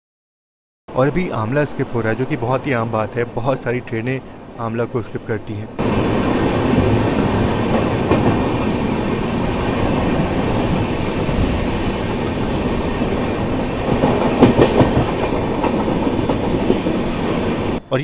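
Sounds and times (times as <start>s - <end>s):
train wheels rumbling on rail: 1.0s - 17.8s
loud wheel clacks: 12.3s - 16.9s.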